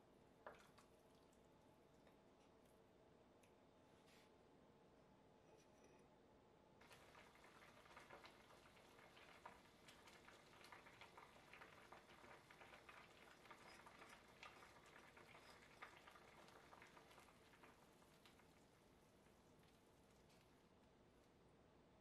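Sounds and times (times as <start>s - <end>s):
corn simmering in a pot: 6.8s - 21.4s.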